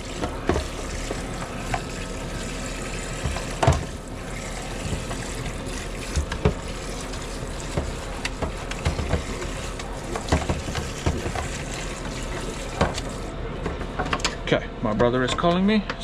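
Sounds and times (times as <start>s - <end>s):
running water: 0.0s - 13.4s.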